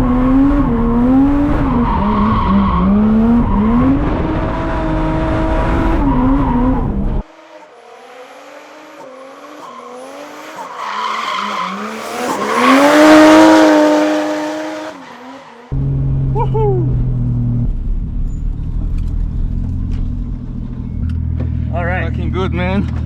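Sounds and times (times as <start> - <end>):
car engine revving hard: 0.0 - 7.3, 11.4 - 15.0.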